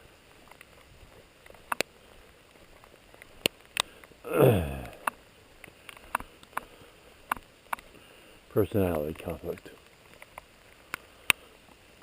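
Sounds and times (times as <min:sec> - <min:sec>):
raindrops ticking near microphone: 0:00.0 - 0:12.0
man's vocal sound sliding down: 0:04.3 - 0:05.0.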